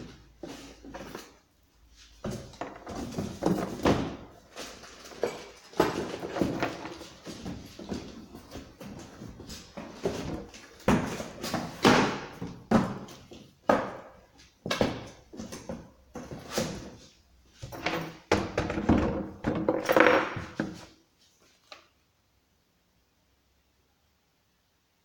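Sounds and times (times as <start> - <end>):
knocks thunks and scrapes unpacking: 2.2 - 14.0.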